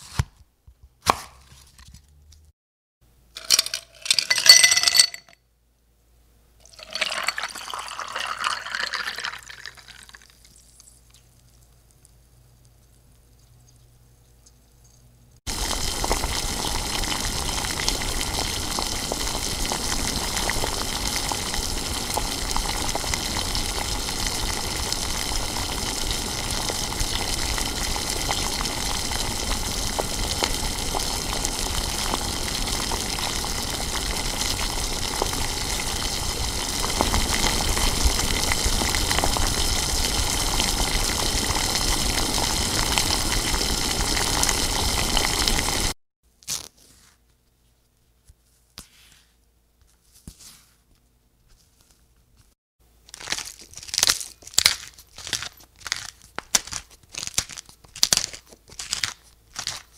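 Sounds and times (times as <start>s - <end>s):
food sizzling in hot oil: 15.5s - 46.0s.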